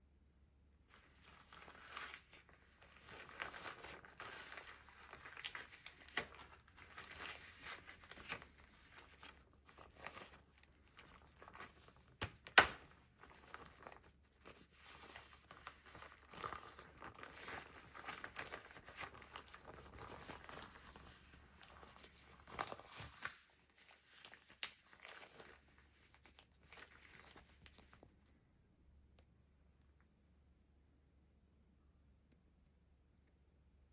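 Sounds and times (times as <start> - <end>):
crumpling and crinkling: 0.9 - 28.2.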